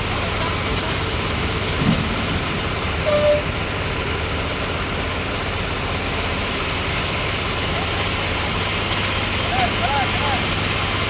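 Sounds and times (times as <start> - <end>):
engine running steadily: 0.0 - 11.0
short higher-pitched tone: 3.0 - 3.6.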